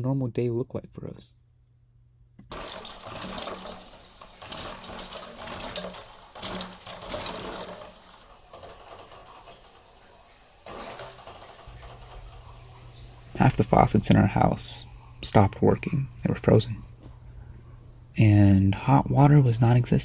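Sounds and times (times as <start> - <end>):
water running and splashing: 2.5 - 17.2.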